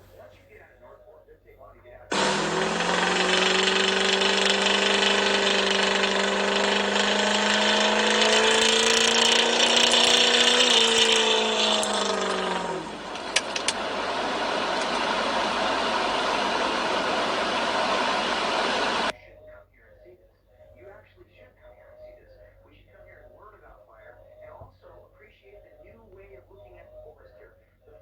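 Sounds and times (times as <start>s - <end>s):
sharp clicks: 2.1s - 19.1s
vehicle engine running hard: 2.1s - 19.1s.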